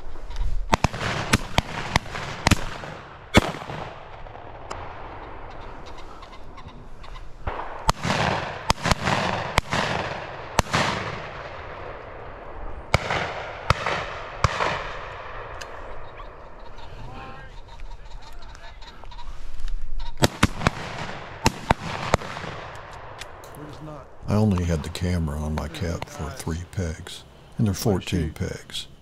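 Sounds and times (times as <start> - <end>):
shotgun shots: 0.7 - 5.7, 7.4 - 16.0, 20.2 - 23.4.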